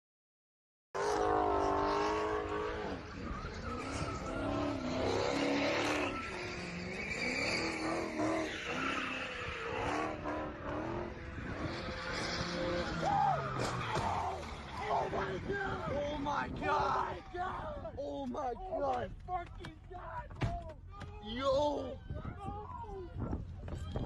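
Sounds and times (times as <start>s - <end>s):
car engine revving: 1.0s - 16.6s
car tyres squealing: 1.0s - 17.7s.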